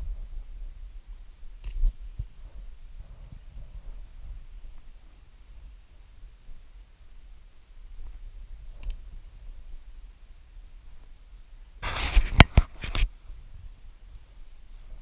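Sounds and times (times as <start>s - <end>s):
sharp clicks: 8.8s - 9.0s.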